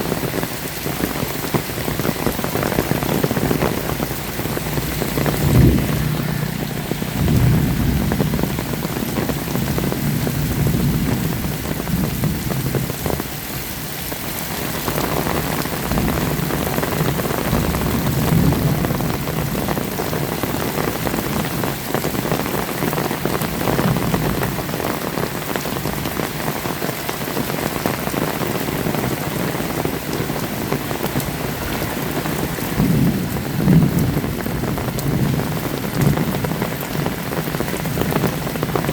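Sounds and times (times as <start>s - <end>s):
heavy rain falling: 0.0s - 38.9s
distant thunder rumbling: 1.2s - 13.3s, 14.9s - 21.4s, 30.3s - 38.9s.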